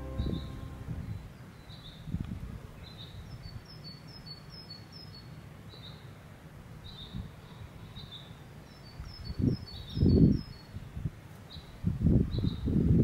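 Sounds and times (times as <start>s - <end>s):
low rumble: 0.0s - 1.3s.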